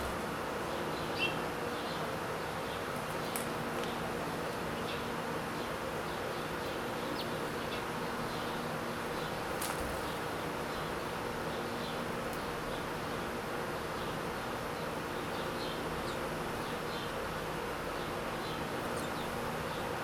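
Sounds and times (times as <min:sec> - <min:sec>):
buzzing of beating wings: 0:08.2 - 0:13.6.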